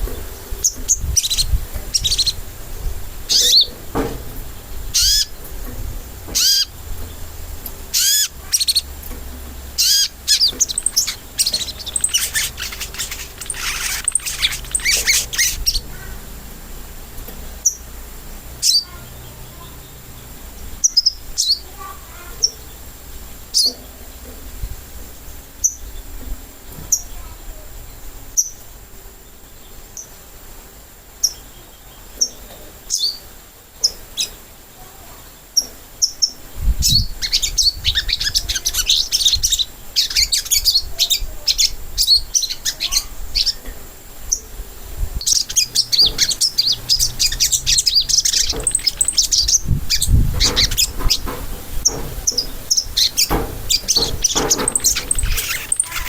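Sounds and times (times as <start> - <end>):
bird rapid chattering: 7.9 - 8.9, 9.8 - 16.2, 45.2 - 56.0
bird sharp high chirps: 9.8 - 16.1, 45.2 - 56.0
low thumps: 45.4 - 56.0.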